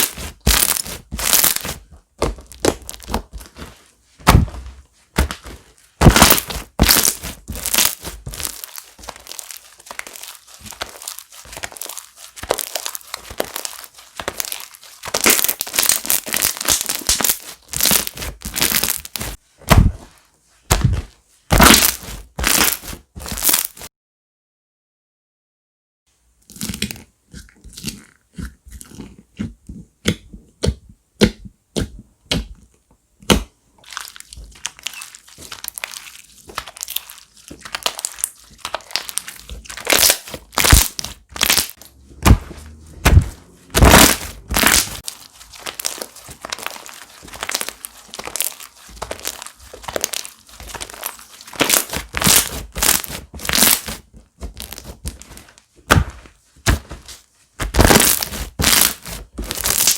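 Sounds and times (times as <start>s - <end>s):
crunchy slime crackling pops: 0.0s - 3.5s, 6.0s - 19.9s, 20.7s - 23.9s, 33.3s - 57.0s, 57.6s - 59.9s.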